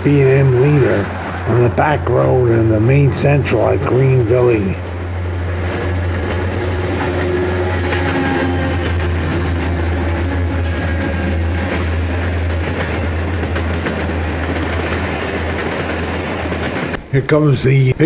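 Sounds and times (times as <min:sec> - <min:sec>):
locomotive low drone: 0:00.0 - 0:17.0
wheels clicking over rail joints: 0:10.6 - 0:17.0.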